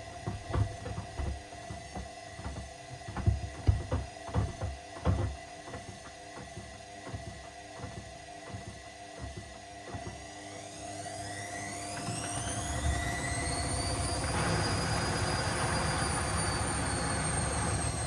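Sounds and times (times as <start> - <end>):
sneakers thumping in drum: 0.0 - 10.2
washing machine motor hum: 0.0 - 18.0.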